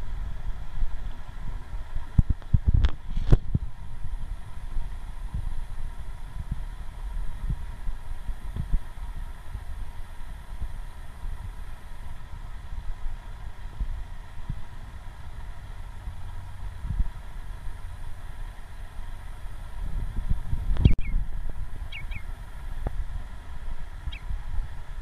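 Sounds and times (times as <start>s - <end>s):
small bird chirping: 20.8s - 21.2s, 21.9s - 22.3s, 24.0s - 24.3s.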